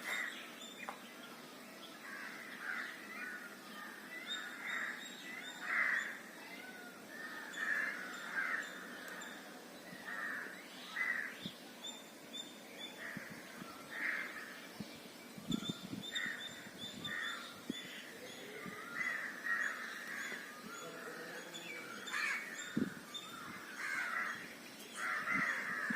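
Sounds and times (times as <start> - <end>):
small birds chirping: 0.0 - 25.9
crows cawing: 2.0 - 5.0, 5.6 - 6.3, 7.2 - 9.2, 10.1 - 11.4, 13.9 - 14.5, 18.8 - 21.1, 22.0 - 25.9.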